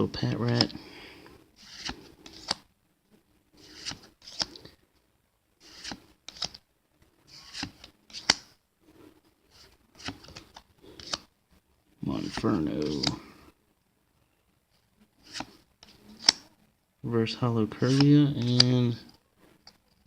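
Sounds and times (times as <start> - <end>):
trading cards flipping: 0.4 - 0.8, 1.6 - 2.7, 3.6 - 4.8, 5.6 - 6.6, 7.3 - 8.6, 9.5 - 11.3, 12.2 - 13.2, 15.2 - 16.5, 17.8 - 18.9.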